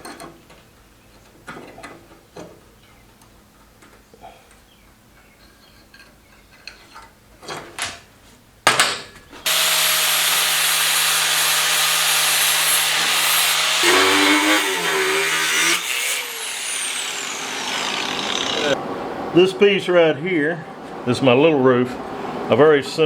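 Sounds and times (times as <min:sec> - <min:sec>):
angle grinder grinding steel: 0:09.5 - 0:18.8.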